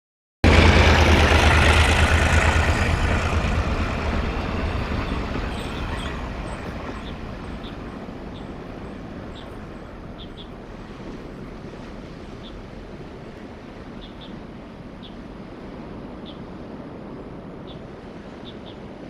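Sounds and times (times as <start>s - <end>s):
diesel train engine rumble: 0.4s - 10.9s
train wheel noise: 0.4s - 12.2s.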